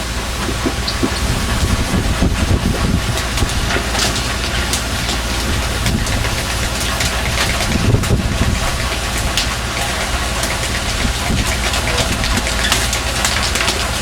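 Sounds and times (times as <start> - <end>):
boat engine humming: 0.0 - 14.0
splashes or knocks: 0.3 - 3.9.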